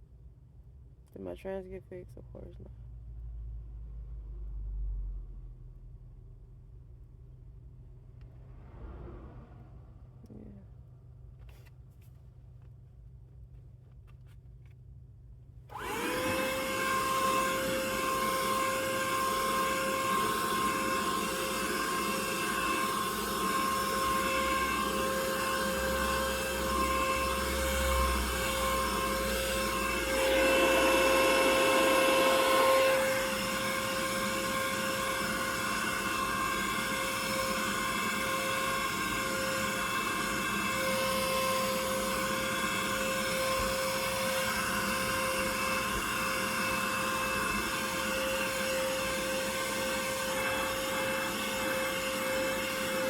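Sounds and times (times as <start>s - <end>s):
vacuum cleaner whining: 15.7s - 53.0s.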